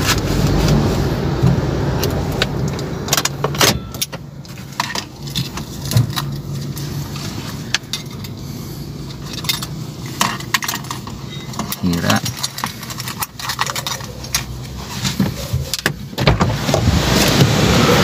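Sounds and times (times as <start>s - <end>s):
car engine idling: 0.0s - 18.0s
keys jingling and clicking: 9.1s - 15.8s.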